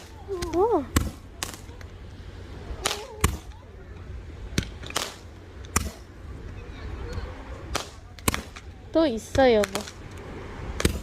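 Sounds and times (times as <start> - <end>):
fireworks bangs: 0.0 - 2.0.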